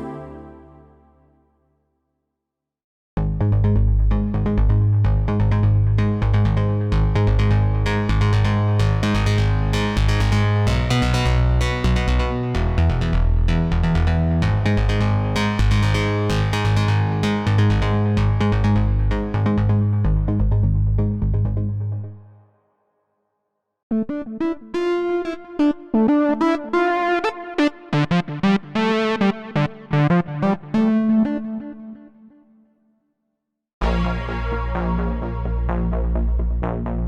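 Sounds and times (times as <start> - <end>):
plucky synth notes: 0.0 - 1.4
sustained synth bass line: 3.2 - 22.3, 33.8 - 37.0.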